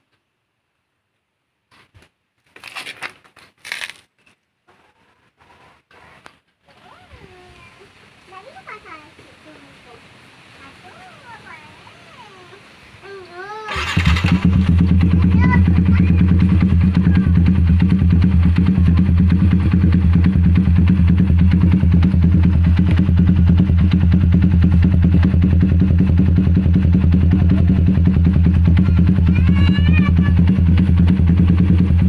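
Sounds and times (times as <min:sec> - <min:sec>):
motorcycle engine starting and idling: 0:13.7 - 0:32.0.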